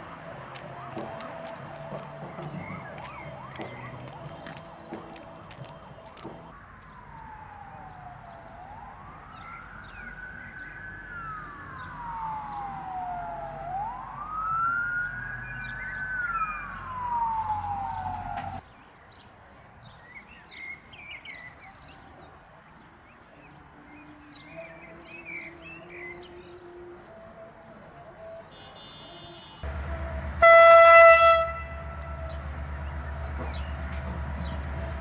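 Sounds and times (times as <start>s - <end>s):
low engine rumble: 0.0s - 6.5s, 15.3s - 18.6s, 29.6s - 35.0s
emergency siren wailing: 0.0s - 18.6s, 23.6s - 35.0s.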